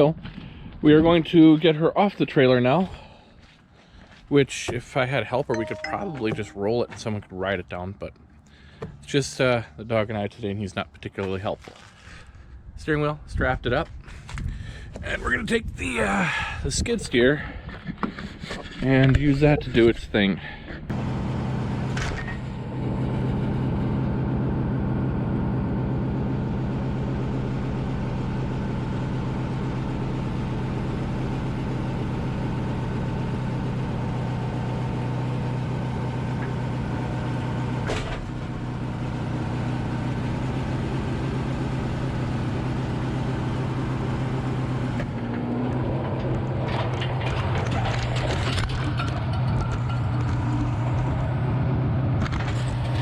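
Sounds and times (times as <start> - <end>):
skid steer engine running: 20.9 - 53.0.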